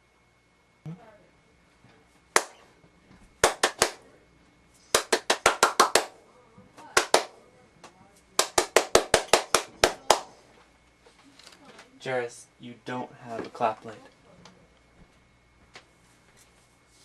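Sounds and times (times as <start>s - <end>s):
sharp hand claps: 2.4s - 2.6s, 3.4s - 4.0s, 4.9s - 6.2s, 7.0s - 7.4s, 8.4s - 10.3s.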